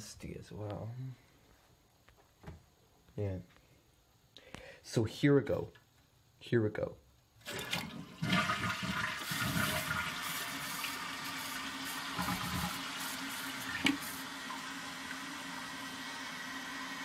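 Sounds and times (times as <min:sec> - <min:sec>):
toilet flushing: 0:07.4 - 0:17.0
toilet tank refilling hiss: 0:07.4 - 0:17.0.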